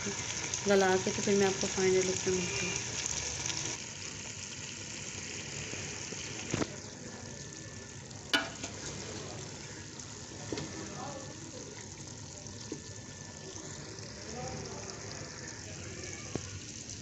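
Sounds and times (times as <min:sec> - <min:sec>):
food sizzling in a pot: 0:00.0 - 0:17.0.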